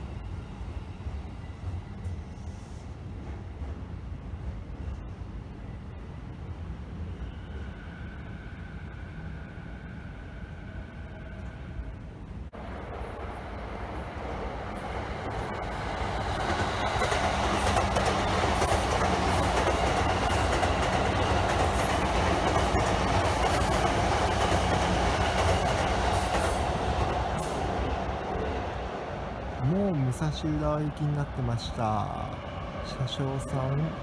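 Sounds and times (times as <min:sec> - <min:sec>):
train wheels on rails: 0:00.0 - 0:11.6, 0:12.5 - 0:34.0.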